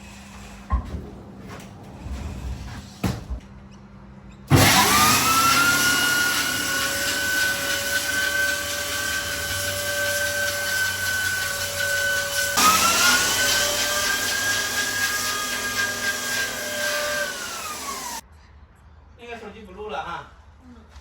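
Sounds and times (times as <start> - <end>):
electric sander motor whine: 4.6 - 18.2.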